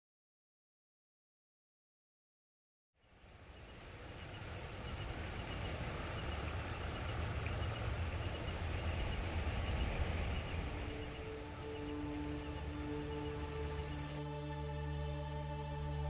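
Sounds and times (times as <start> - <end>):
steady rushing noise: 3.2 - 14.3
low fluctuating rumble: 3.4 - 16.0.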